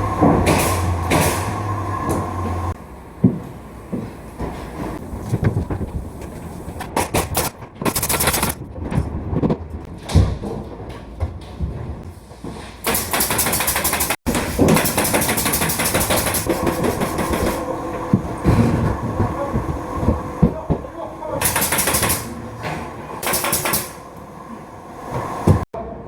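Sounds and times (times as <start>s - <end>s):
knocks and clattering impacts: 0.0s - 24.0s.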